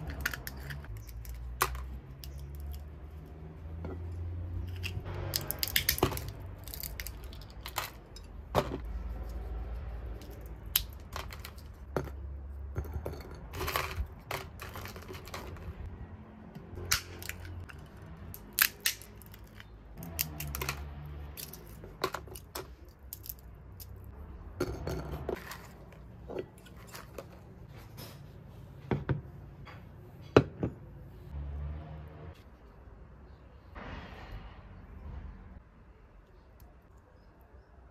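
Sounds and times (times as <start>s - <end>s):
small objects clicking and tapping: 0.0s - 3.0s, 4.7s - 9.4s, 10.1s - 15.9s, 16.6s - 27.4s.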